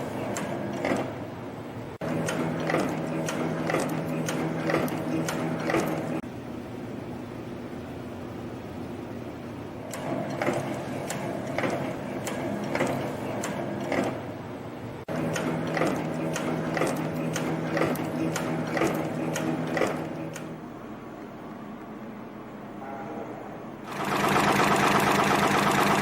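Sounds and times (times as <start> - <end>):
machine hum: 0.0 - 26.0
rhythmic forming machine strokes: 2.0 - 6.2, 9.8 - 14.3, 15.0 - 20.6, 23.9 - 26.0.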